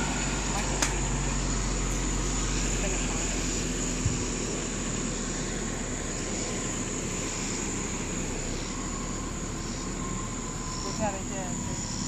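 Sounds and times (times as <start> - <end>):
high-pitched whine: 0.0 - 12.0
low background rumble: 0.0 - 12.0.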